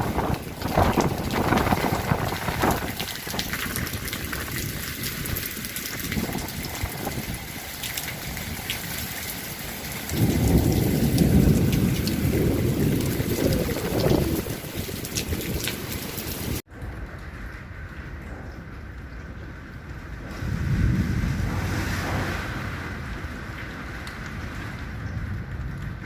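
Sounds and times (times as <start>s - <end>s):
heavy rain pouring: 0.0s - 26.0s
low rumble: 16.7s - 26.0s.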